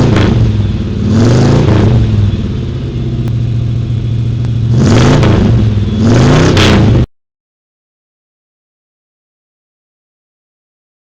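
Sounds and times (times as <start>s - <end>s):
car engine revving: 0.0s - 7.1s.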